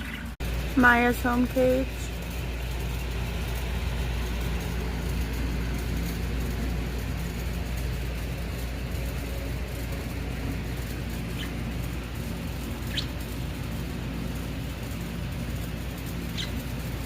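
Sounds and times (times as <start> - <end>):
low mechanical engine rumble: 0.0 - 17.0
bird chirp: 11.1 - 11.8, 12.6 - 13.4, 16.3 - 17.0.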